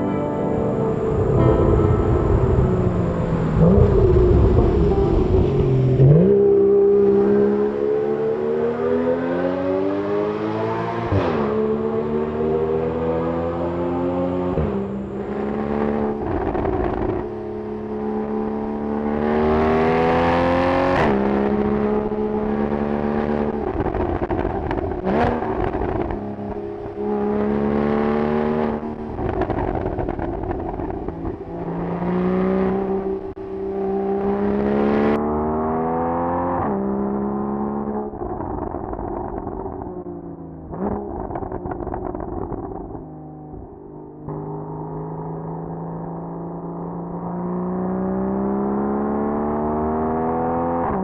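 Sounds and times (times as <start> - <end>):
car engine accelerating hard: 0.0 - 51.0
exhaust cracks: 16.0 - 17.5, 23.5 - 27.0, 28.6 - 32.0, 38.0 - 43.6.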